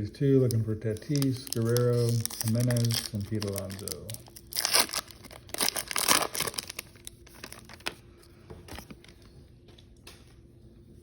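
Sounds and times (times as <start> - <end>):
card pack wrapper crinkling: 0.4 - 8.0.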